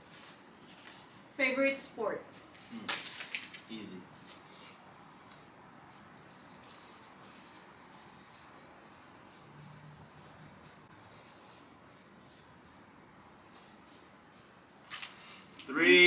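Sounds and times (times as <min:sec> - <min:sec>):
pen scratching while writing: 0:06.0 - 0:12.8.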